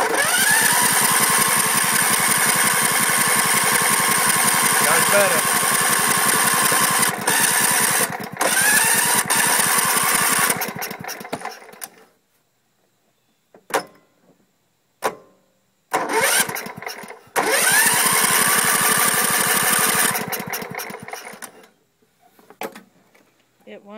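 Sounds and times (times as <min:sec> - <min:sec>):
starter cranking engine: 0:00.0 - 0:12.0, 0:15.9 - 0:21.6.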